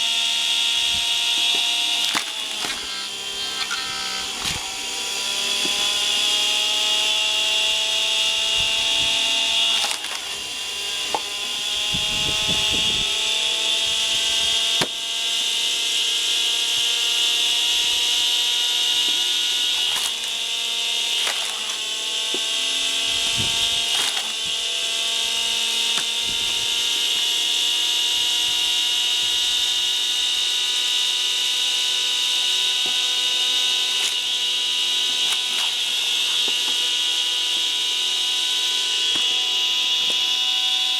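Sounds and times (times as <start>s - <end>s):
motor whining: 0.0s - 40.9s
wood cracking: 0.8s - 6.4s, 8.6s - 11.6s, 17.8s - 26.8s, 32.7s - 37.7s.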